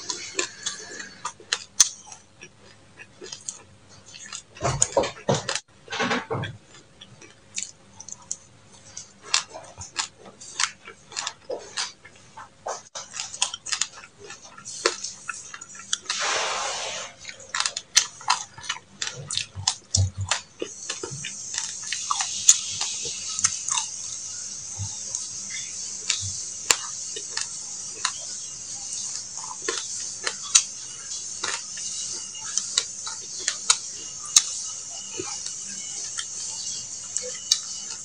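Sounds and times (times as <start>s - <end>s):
crunchy chewing: 0.0s - 38.0s
steady high hiss: 14.6s - 18.5s, 20.3s - 38.0s.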